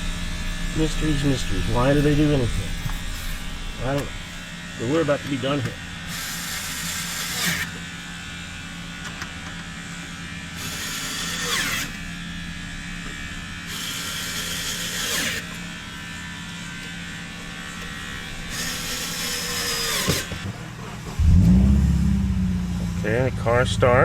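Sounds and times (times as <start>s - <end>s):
low hum: 0.0s - 6.1s, 20.6s - 24.0s
electric motor whirring: 0.0s - 23.0s.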